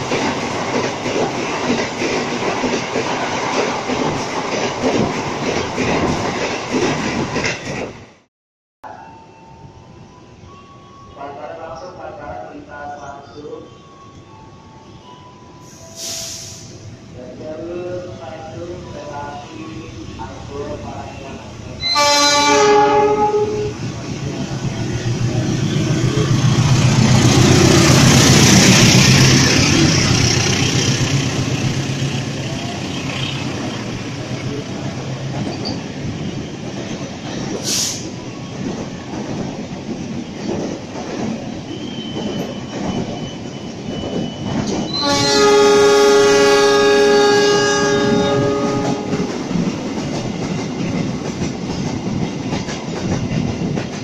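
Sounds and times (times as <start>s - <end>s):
diesel locomotive engine: 9.4s - 54.0s
train horn: 21.8s - 23.8s, 44.9s - 49.4s.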